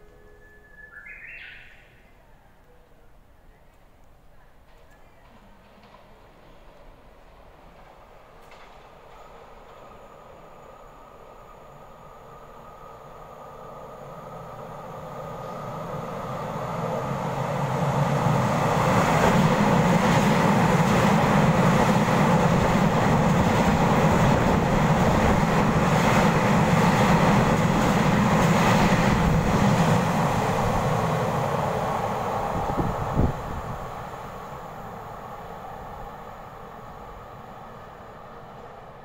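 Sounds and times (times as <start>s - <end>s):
electric train passing rumble: 0.0s - 3.4s, 4.2s - 39.0s.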